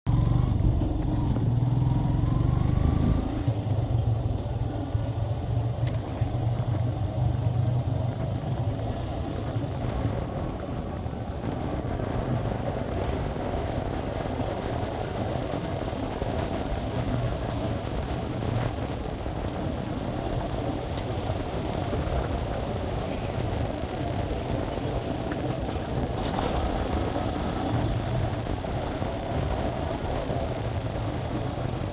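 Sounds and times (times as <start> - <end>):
motorcycle engine drone: 0.1 - 31.9
road and wind noise: 0.1 - 31.9.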